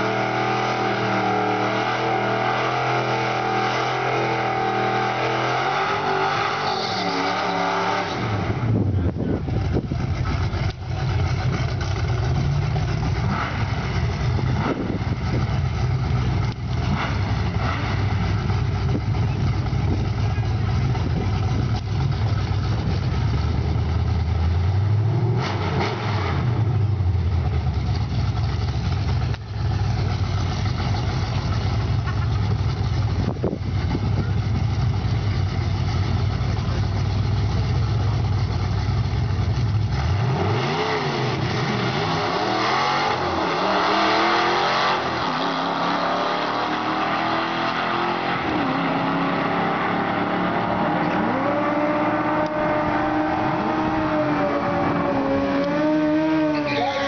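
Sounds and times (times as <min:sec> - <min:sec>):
cars accelerating hard: 0:00.0 - 0:10.8, 0:11.4 - 0:27.1, 0:39.8 - 0:57.0
car engine revving: 0:00.0 - 0:57.0
car engines idling: 0:07.8 - 0:25.3, 0:26.5 - 0:57.0.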